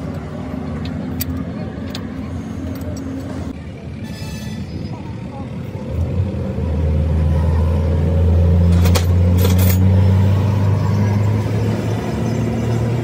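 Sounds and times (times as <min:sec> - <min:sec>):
engine running: 0:04.8 - 0:13.0.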